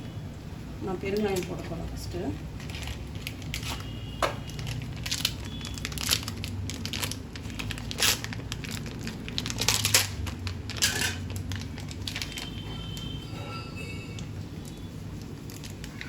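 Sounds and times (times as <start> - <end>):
plastic packet crinkling: 2.5 - 13.2, 14.1 - 16.0.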